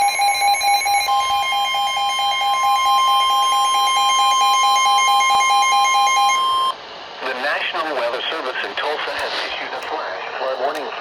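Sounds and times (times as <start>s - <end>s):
loud steady alarm tone: 0.0s - 6.8s.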